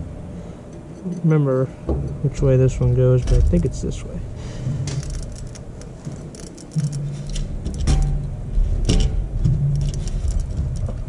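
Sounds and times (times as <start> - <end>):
low hum: 0.0 - 11.0
metal parts clinking: 4.9 - 8.2, 9.8 - 11.0.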